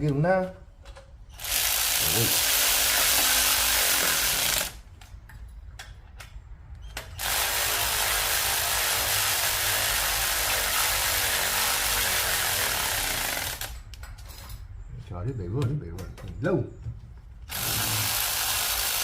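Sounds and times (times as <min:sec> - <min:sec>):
cordless power tool running: 0:01.4 - 0:04.8, 0:07.2 - 0:13.8, 0:17.5 - 0:19.0.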